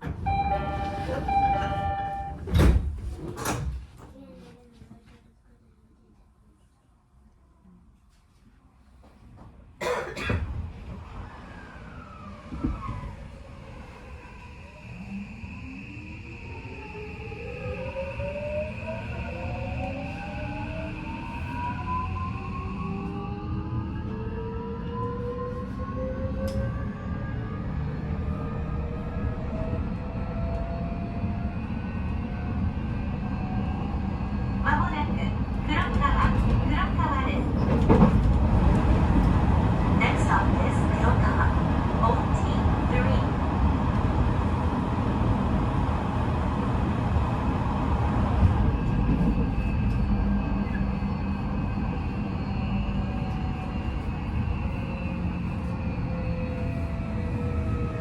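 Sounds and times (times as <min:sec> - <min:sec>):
train wheels rumbling on rail: 0:24.0 - 0:58.0.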